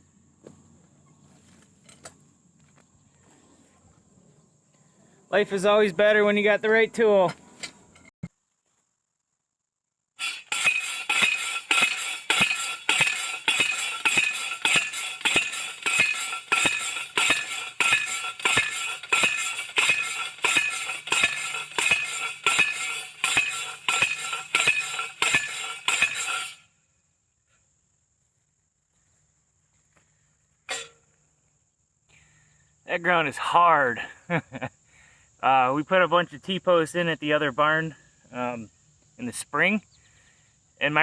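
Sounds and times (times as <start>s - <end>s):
post driver clanging on metal post: 10.2s - 26.6s, 30.7s - 31.0s.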